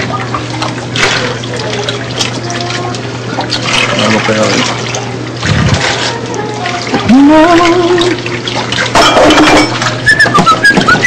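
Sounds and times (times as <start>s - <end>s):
dishes being washed: 0.0s - 11.0s
tap water running into sink: 0.0s - 11.0s
person singing wavering note: 6.1s - 8.3s
high whistled notes: 9.4s - 11.0s.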